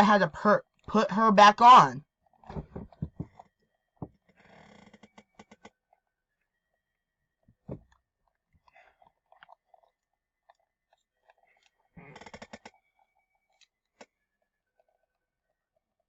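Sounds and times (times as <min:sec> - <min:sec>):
dull knock: 0:02.5 - 0:03.3.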